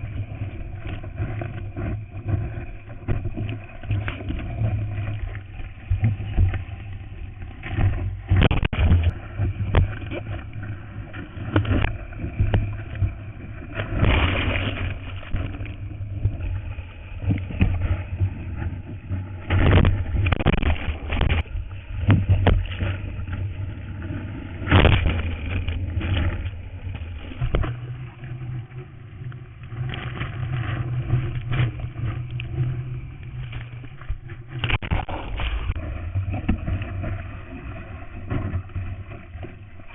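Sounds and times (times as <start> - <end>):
surf rushing: 0.0 - 39.9
wind noise on microphone: 0.0 - 39.9
microphone bumps: 8.3 - 9.1, 34.6 - 35.8.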